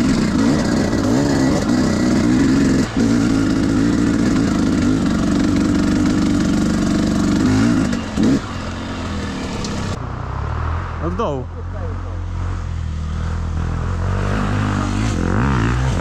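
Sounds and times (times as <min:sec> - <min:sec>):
dirt bike engine revving: 0:00.0 - 0:11.0, 0:11.6 - 0:16.0.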